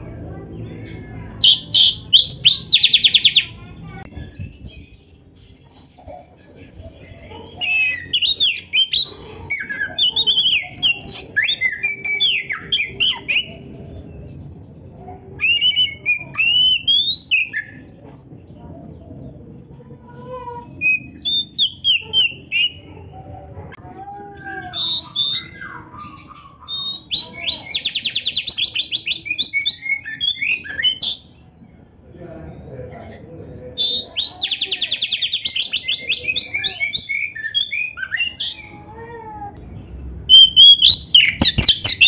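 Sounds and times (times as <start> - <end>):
bird singing varied song: 0.0 - 42.0
fast repeated bird trill: 1.4 - 3.6, 15.4 - 17.9, 24.7 - 31.4, 40.3 - 42.0.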